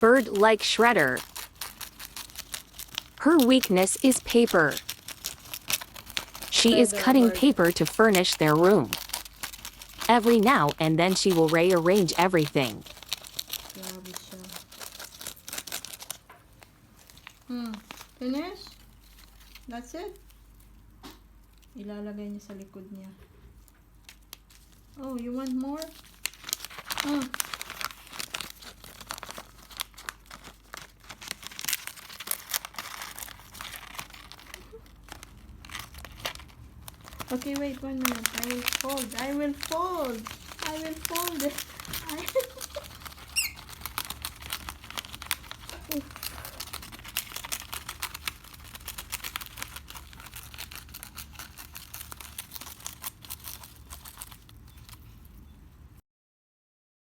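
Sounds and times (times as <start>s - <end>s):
bird shredding paper: 1.1s - 3.3s, 4.7s - 6.6s, 8.8s - 10.1s, 12.8s - 19.7s, 24.4s - 55.3s.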